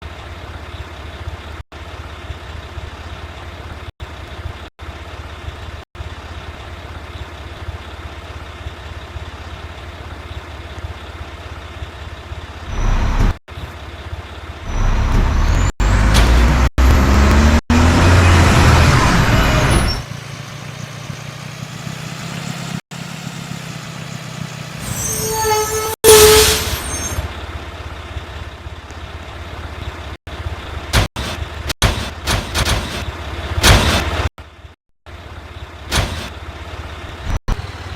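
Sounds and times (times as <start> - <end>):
diesel truck engine revving: 10.4 - 25.4, 35.8 - 37.9.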